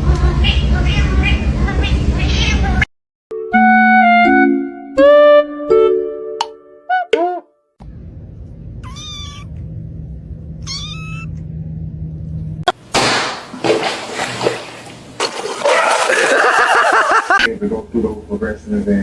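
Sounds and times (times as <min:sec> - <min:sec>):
cat meowing: 0:02.2 - 0:02.8, 0:08.8 - 0:09.6, 0:10.6 - 0:11.3
low steady hum: 0:07.8 - 0:15.7.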